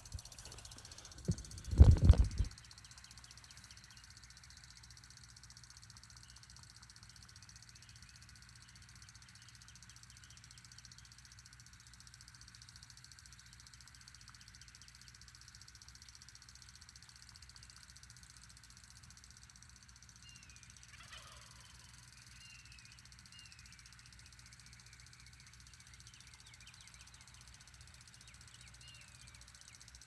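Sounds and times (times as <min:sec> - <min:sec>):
low hum: 0:00.0 - 0:02.5.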